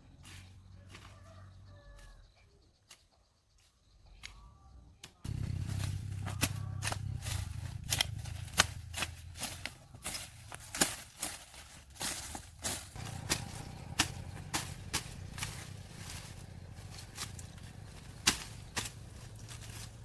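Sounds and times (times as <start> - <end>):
low hum: 5.3 - 10.5, 12.9 - 20.0.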